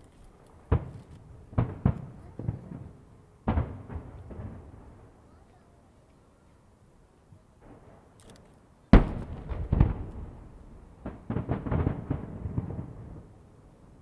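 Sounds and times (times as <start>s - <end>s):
crackling firework pops: 0.0s - 4.6s, 7.7s - 13.0s
firework bang with rumble: 9.0s - 13.3s.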